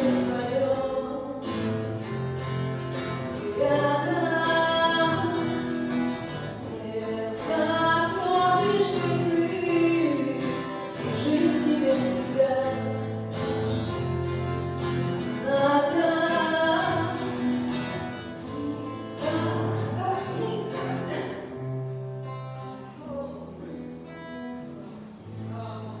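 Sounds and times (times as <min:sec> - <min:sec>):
guitar: 0:00.0 - 0:26.0
hymn singing: 0:03.2 - 0:12.9.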